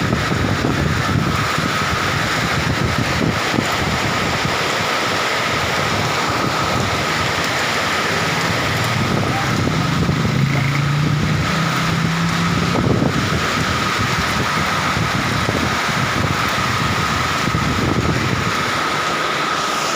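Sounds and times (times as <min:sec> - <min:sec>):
heavy rain on street: 0:00.0 - 0:19.9
vehicle engine passing: 0:07.0 - 0:15.7.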